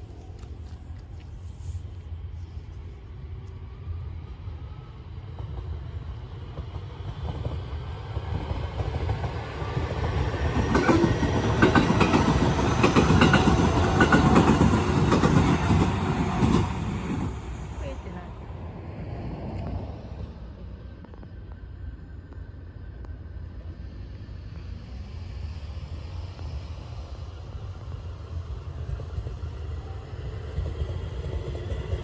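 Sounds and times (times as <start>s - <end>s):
electric train rumble: 0.0s - 32.0s
wheels clacking over rail joints: 10.0s - 17.3s.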